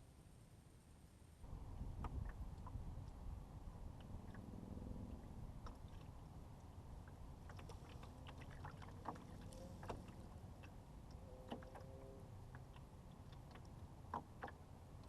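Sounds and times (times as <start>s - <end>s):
wind: 0.0s - 15.0s
water wash: 5.2s - 15.0s.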